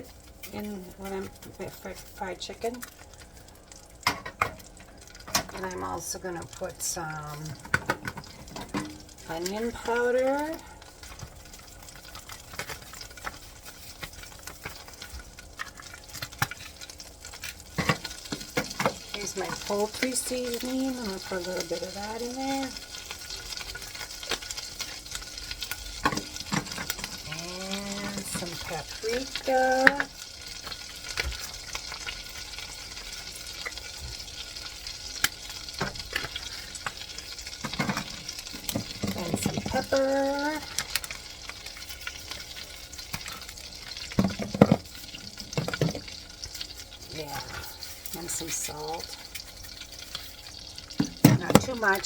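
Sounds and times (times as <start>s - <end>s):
butter and oil crackling in a pan: 0.0s - 52.0s.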